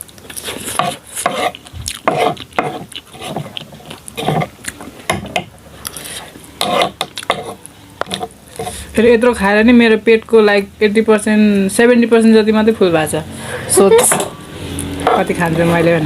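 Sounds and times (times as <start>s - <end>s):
chopsticks scraping a bowl: 0.3s - 4.6s, 5.9s - 8.9s.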